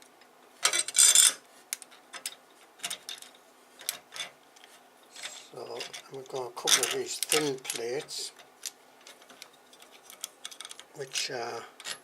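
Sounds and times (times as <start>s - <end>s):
light clicks of small parts: 1.7s - 12.0s
plastic parts clattering: 5.2s - 8.1s.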